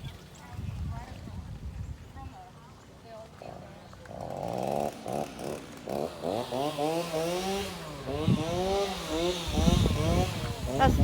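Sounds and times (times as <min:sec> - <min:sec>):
small engine revving: 0:04.1 - 0:11.0.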